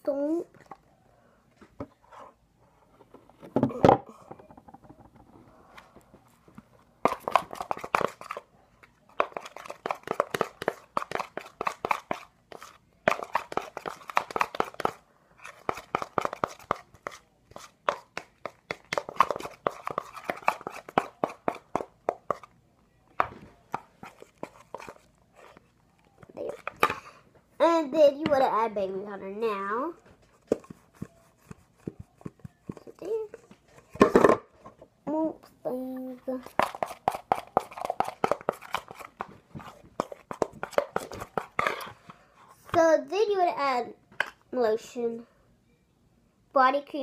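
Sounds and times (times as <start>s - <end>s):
spoon stirring slime in a bowl: 6.6s - 22.6s, 23.2s - 28.8s, 29.5s - 34.1s, 36.2s - 42.8s.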